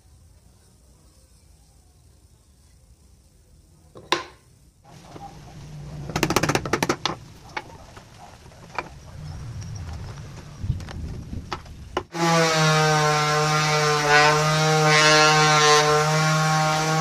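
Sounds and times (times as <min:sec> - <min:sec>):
rattle of clicks: 0:06.1 - 0:09.0.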